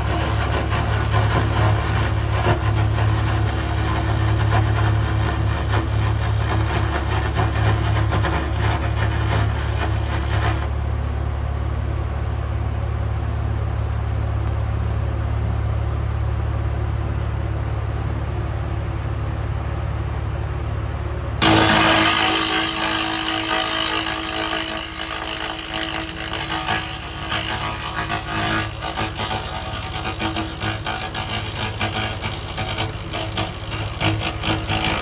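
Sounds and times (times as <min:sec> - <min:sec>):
hissing buzz: 0:00.0 - 0:10.7, 0:21.4 - 0:35.0
low machine hum: 0:00.0 - 0:35.0.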